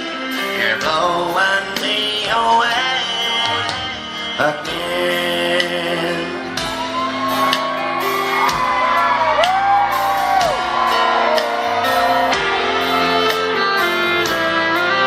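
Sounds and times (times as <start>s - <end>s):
live country band playing: 0.0s - 15.0s
steady drum beat: 0.0s - 15.0s.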